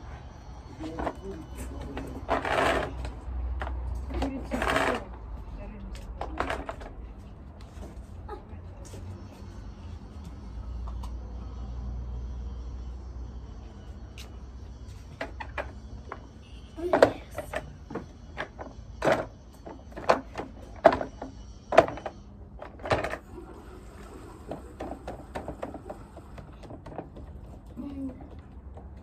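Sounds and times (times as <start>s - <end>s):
vacuum cleaner parts clattering: 0.8s - 5.2s, 16.9s - 27.3s.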